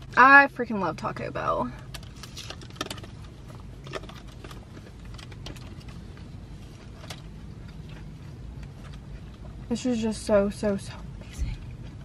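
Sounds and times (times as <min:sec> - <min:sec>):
car cabin hum: 0:00.0 - 0:12.0
chewing crunchy taco shell: 0:01.8 - 0:09.7.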